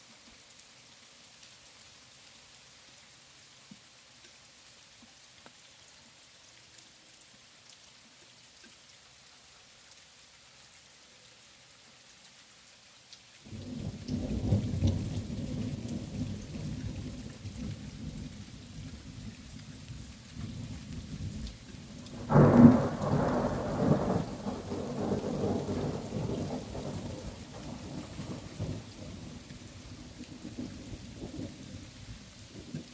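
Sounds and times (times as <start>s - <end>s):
steady rain falling: 0.0s - 32.9s
thunderclap and rumble: 13.6s - 18.4s, 20.4s - 31.7s.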